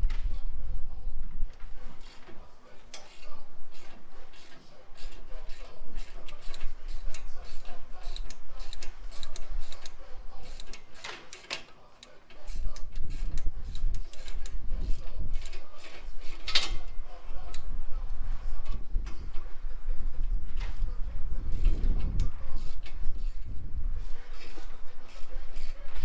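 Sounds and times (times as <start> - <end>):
ratchet wrench clicking: 2.9 - 17.7, 21.5 - 23.5, 24.3 - 26.0.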